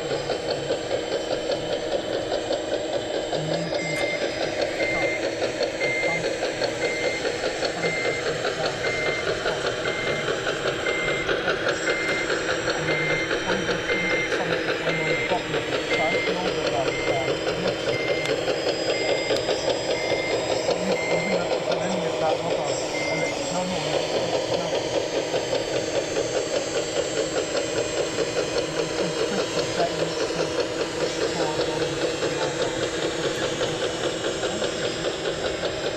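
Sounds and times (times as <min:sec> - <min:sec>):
machinery rattling and whirring: 0:00.0 - 0:35.9
reversing beeper: 0:00.0 - 0:35.9
small electric motors and gearing: 0:00.0 - 0:35.9.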